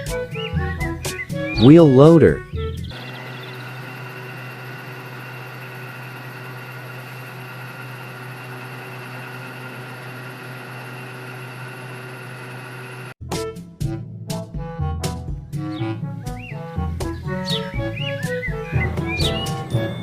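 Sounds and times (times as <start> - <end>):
machine humming drone: 2.9 - 13.2.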